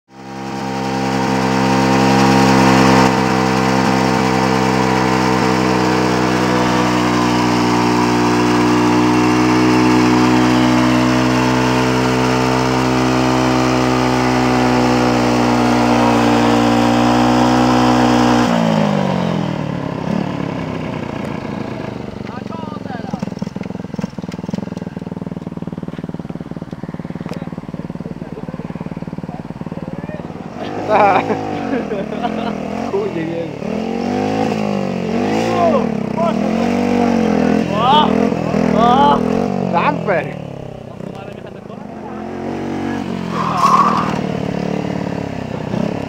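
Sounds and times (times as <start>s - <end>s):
motorcycle engine revving: 0.1s - 46.0s
tyre spinning in a burnout: 0.8s - 18.5s, 42.8s - 44.4s.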